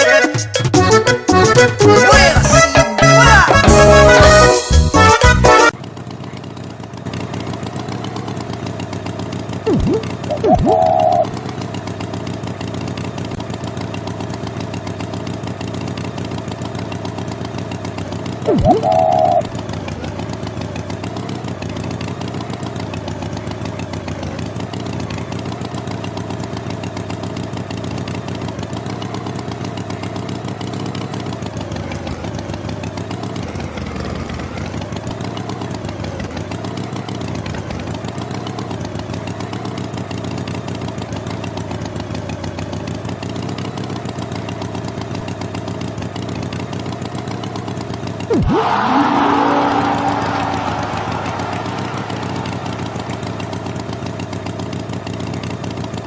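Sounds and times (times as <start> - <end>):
engine running steadily: 0.0 - 56.0
sudden louder sound: 48.3 - 50.1.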